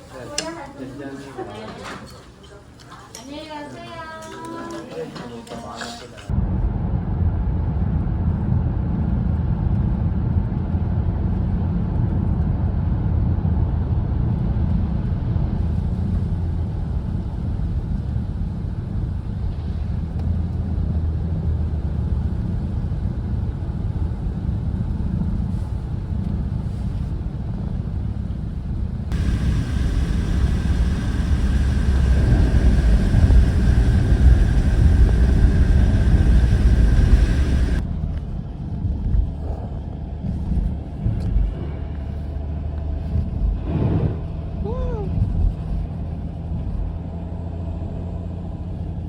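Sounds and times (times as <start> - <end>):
car engine and tyre rumble: 6.3 - 49.0
hissing noise: 29.1 - 37.8
steady high-pitched tone: 29.1 - 37.8.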